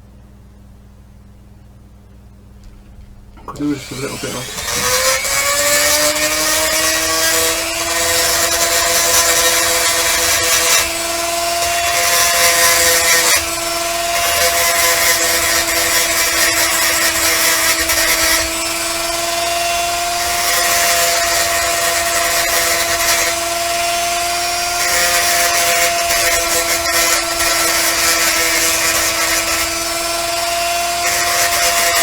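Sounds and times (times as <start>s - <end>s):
rotary tool whining: 3.3s - 32.0s
bit grinding on metal: 3.4s - 32.0s.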